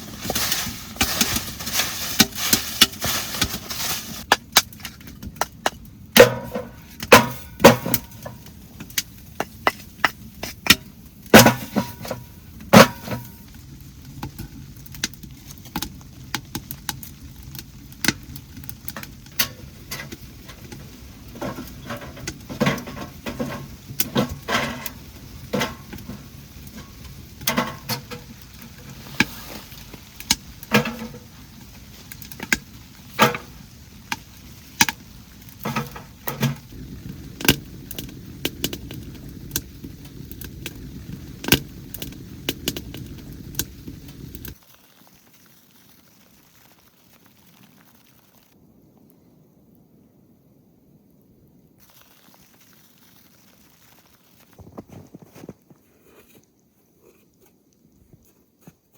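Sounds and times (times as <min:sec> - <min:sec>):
small hard objects clinking: 0:14.2 - 0:36.8.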